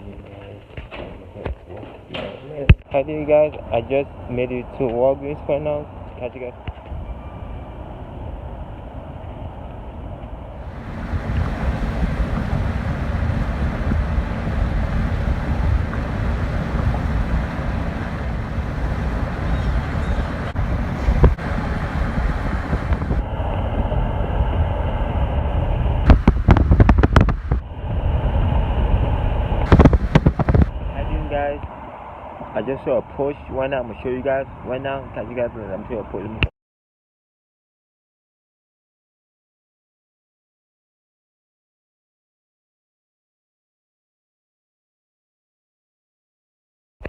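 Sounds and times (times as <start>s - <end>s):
wind buffeting microphone: 2.5s - 36.4s.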